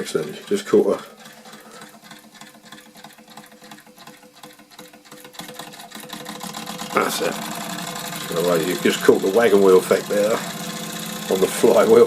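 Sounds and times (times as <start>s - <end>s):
toy steam engine ticking clatter: 0.0s - 12.0s
steady hum: 6.8s - 10.4s.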